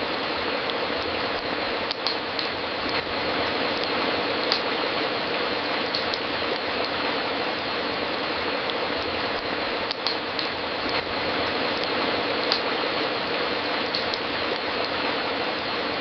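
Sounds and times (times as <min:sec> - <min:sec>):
fireplace fire crackling: 0:00.0 - 0:16.0.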